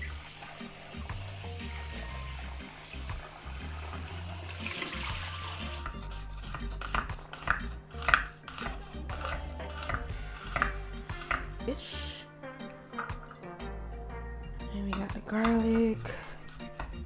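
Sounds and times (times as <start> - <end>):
kitchen tap running: 0.0 - 6.0, 12.9 - 13.5
background music with bass line: 0.0 - 17.0
knife chopping on cutting board: 5.1 - 11.7, 14.9 - 17.0.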